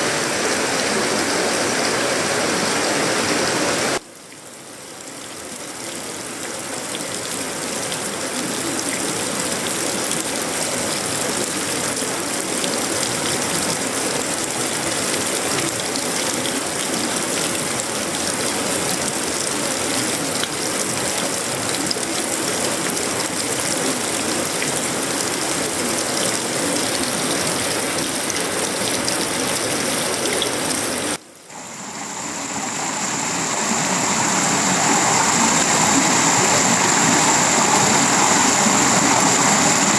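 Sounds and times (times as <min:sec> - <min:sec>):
rain on metal and leaves: 0:00.0 - 0:31.8
high-pitched whine: 0:31.5 - 0:39.9.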